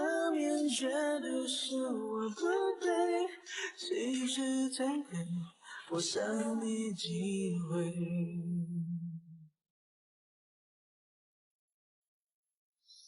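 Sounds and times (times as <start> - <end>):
song with singing voice: 0.0 - 9.5.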